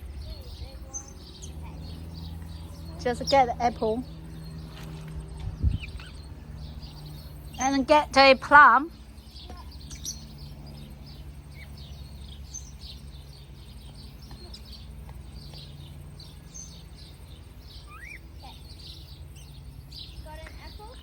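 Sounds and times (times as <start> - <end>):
faint bird chirping: 0.0 - 21.0
low steady hum: 0.0 - 21.0
rising bird call: 16.3 - 20.2.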